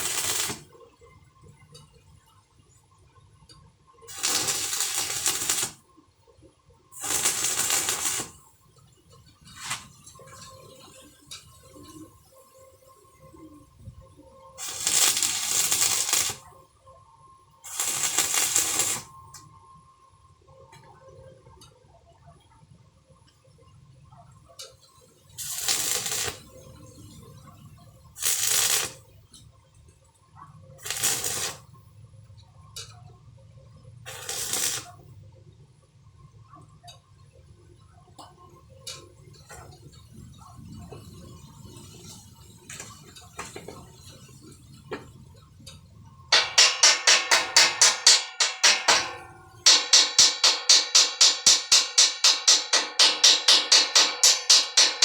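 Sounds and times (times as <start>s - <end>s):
hissing tack welds: 0.0s - 0.8s, 4.1s - 5.8s, 7.0s - 8.6s, 9.2s - 11.0s, 14.6s - 16.6s, 17.6s - 19.4s, 25.3s - 29.2s, 30.8s - 31.8s, 34.1s - 35.1s, 39.4s - 55.0s.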